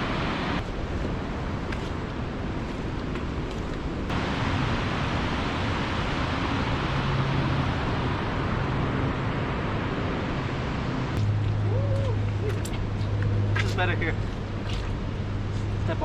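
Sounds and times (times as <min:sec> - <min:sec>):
waterfall roaring: 0:04.0 - 0:13.0.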